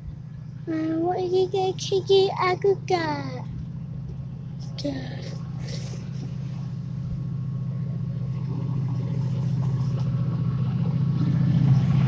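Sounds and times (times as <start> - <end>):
diesel train engine throbbing: 0.0 - 12.0.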